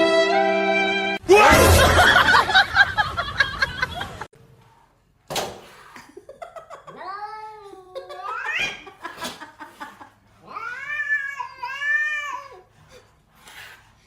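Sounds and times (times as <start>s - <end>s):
people laughing: 1.5s - 4.3s.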